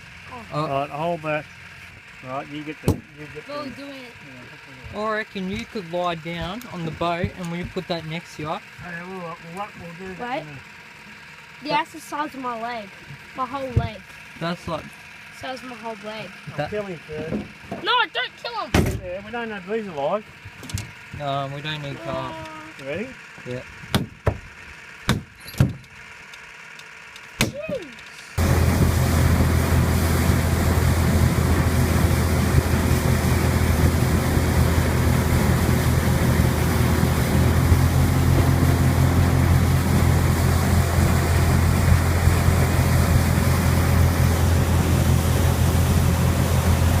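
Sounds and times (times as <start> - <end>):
boat motor humming: 0.0 - 47.0
knocks: 23.9 - 24.5
rush of wind and water: 28.4 - 47.0.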